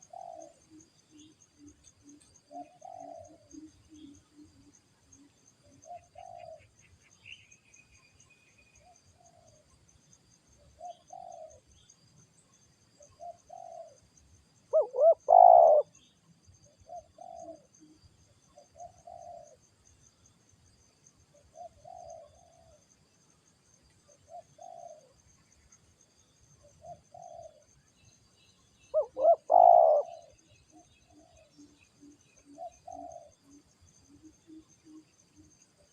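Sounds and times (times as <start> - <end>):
doves cooing: 0.0 - 0.7, 2.5 - 3.7, 5.8 - 6.7, 13.2 - 14.0, 14.7 - 16.0, 16.9 - 17.7, 24.3 - 25.1, 26.8 - 27.7, 28.9 - 30.4, 32.5 - 33.4.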